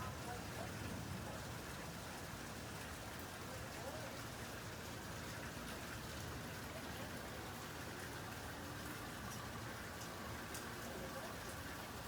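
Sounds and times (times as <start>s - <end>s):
rain hissing on surfaces: 0.0s - 12.0s.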